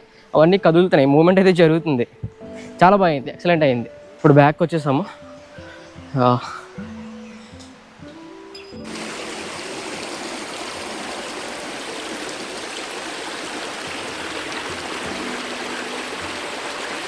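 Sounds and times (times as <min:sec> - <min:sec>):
faint background music: 0:00.0 - 0:11.7, 0:13.9 - 0:17.0
stream water rushing: 0:08.8 - 0:17.0.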